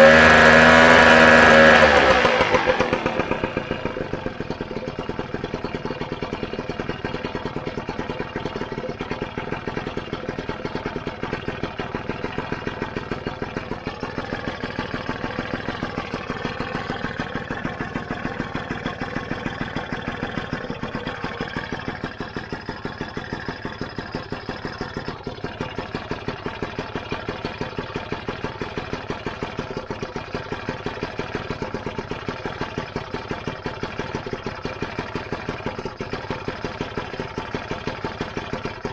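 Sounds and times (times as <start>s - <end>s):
two-stroke scooter engine idling: 0.0s - 38.9s.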